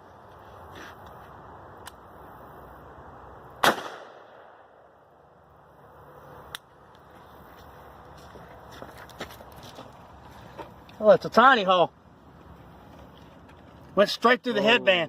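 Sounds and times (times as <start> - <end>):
rifle shot with echo: 3.6 - 4.9.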